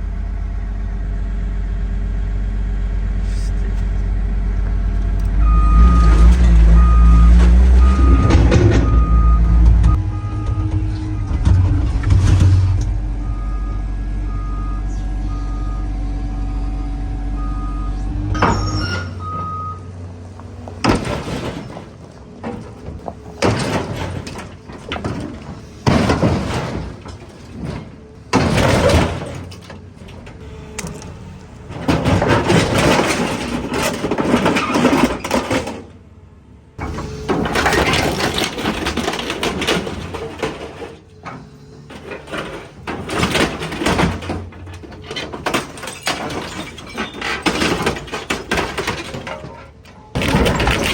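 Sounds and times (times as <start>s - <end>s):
heavy diesel machine running: 0.0s - 50.9s
back-up alarm beeping: 6.7s - 12.0s, 13.1s - 19.9s.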